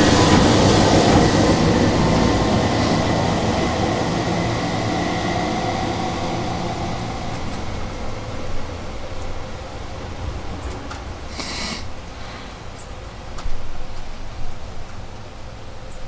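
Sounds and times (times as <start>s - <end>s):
faint rail squealing: 0.0s - 11.3s
train rumbling on rails: 0.0s - 16.0s.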